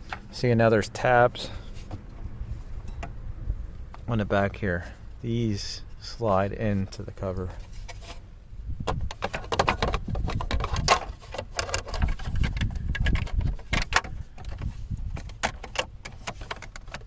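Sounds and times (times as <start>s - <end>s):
hard plastic clicks and rattles: 8.9s - 17.0s.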